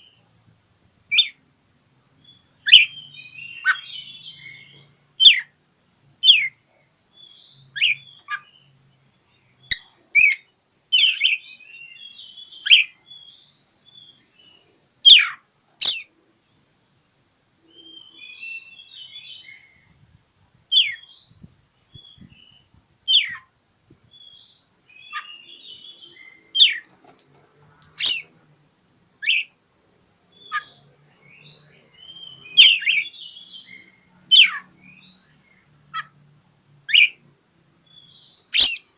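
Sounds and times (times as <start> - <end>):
soft twittering chatter: 0.0 - 38.9
bird whistling sharp notes: 28.0 - 28.3, 38.6 - 38.8.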